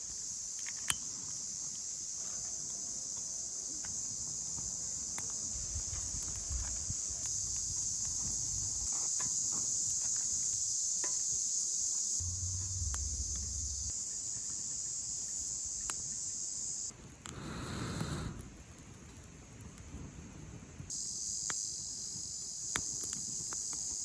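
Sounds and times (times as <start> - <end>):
insects chirring: 0.0 - 17.8, 20.9 - 24.0
low rustle: 12.2 - 13.9.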